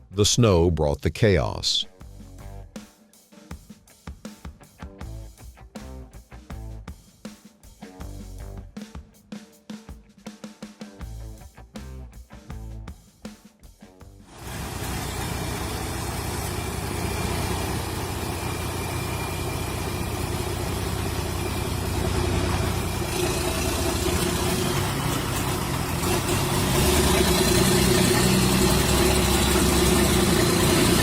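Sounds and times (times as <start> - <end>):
truck engine running: 14.3 - 31.0.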